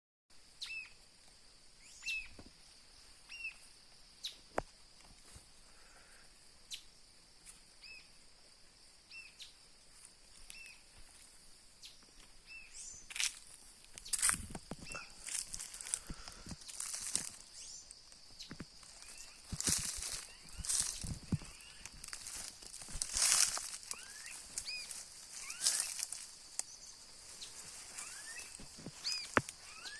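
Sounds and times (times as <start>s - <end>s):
high-pitched hiss: 0.4s - 29.9s
bird chirping: 0.6s - 1.0s, 1.8s - 2.4s, 3.0s - 4.5s, 9.1s - 9.6s, 11.8s - 13.1s, 23.1s - 29.9s.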